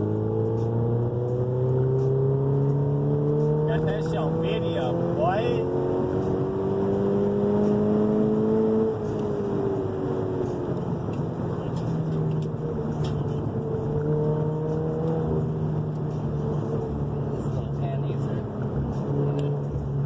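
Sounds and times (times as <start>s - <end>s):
car engine running hard: 0.0s - 20.0s.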